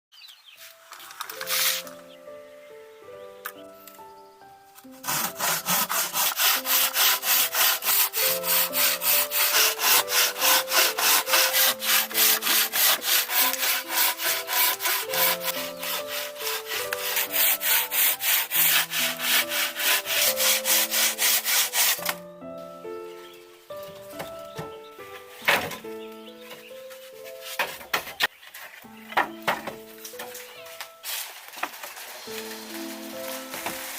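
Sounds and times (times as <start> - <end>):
soft background music: 0.2 - 33.9
hand saw cutting wood: 5.0 - 22.2, 31.0 - 33.9.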